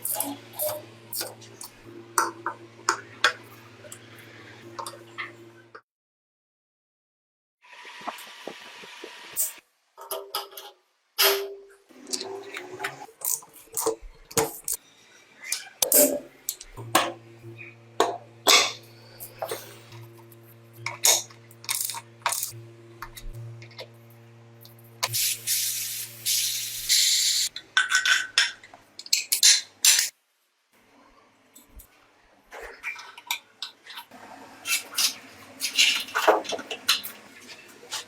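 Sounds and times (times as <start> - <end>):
steady hum: 16.7 - 27.5.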